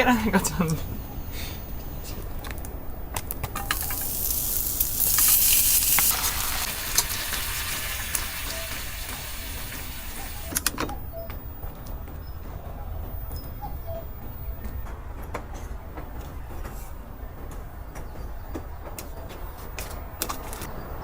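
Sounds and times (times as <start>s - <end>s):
food sizzling in a pan: 3.6s - 10.6s.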